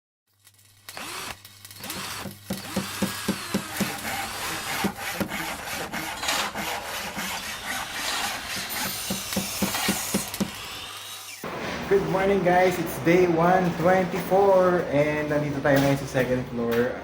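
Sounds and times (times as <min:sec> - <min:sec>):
rhythmic scraping strokes: 0:02.0 - 0:10.4.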